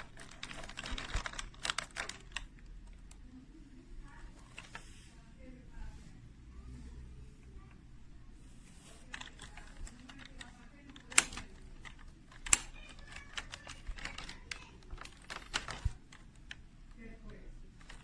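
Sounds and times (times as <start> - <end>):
computer keyboard keys clacking: 0.0 - 3.2, 9.1 - 16.6.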